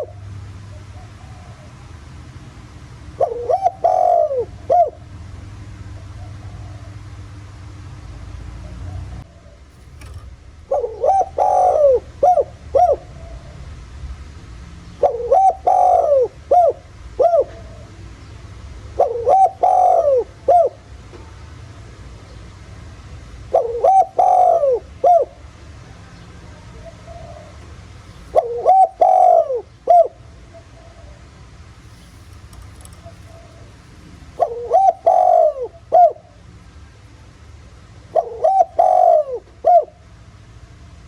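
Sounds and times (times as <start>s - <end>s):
dove cooing: 3.2s - 5.0s, 9.4s - 13.5s, 15.0s - 17.9s, 19.0s - 20.8s, 23.5s - 25.3s, 26.8s - 30.2s, 31.9s - 36.3s, 38.1s - 39.9s.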